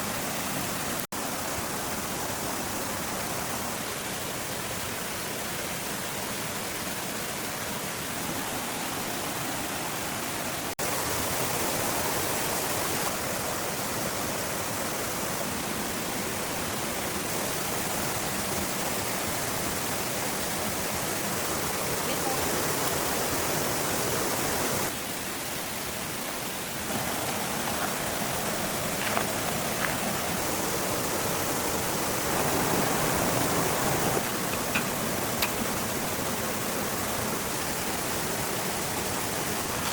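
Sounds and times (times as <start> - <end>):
steady rushing noise: 26.8 - 39.9.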